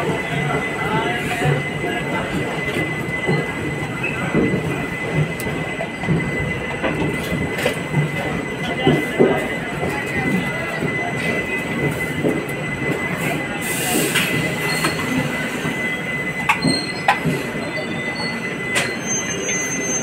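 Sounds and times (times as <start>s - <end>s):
train running rumble: 0.0s - 20.0s
high-pitched wheel squeal: 14.0s - 20.0s.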